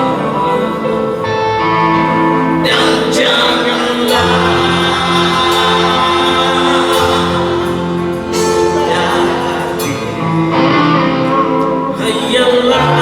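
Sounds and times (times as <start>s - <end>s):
live band playing: 0.0s - 13.0s
person singing: 0.0s - 13.0s.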